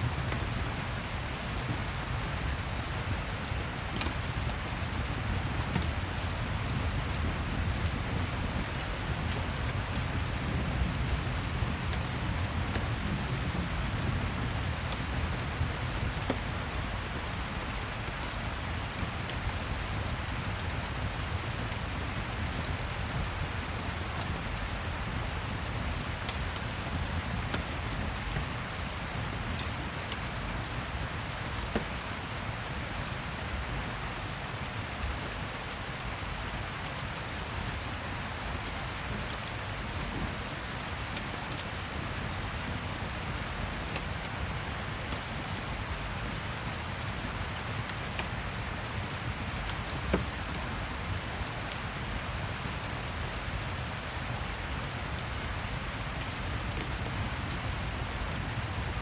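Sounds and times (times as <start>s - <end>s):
steady rain falling: 0.0s - 59.0s
fireplace crackling: 47.0s - 59.0s.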